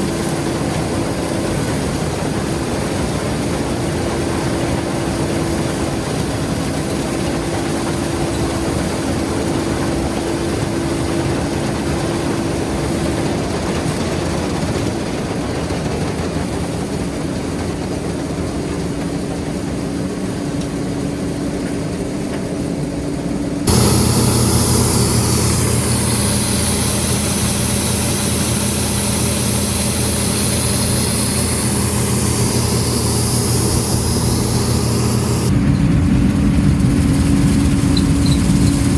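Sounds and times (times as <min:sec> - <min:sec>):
combine harvester drone: 0:00.0 - 0:17.0, 0:23.5 - 0:38.9
strong hiss: 0:23.7 - 0:35.5.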